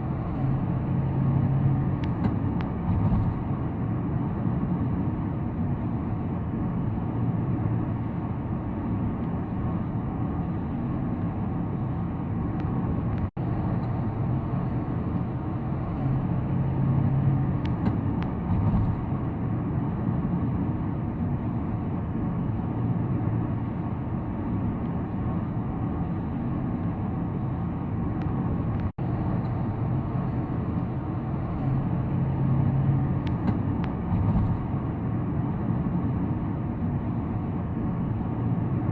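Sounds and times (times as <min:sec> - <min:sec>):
car road and engine noise: 0:00.0 - 0:38.9.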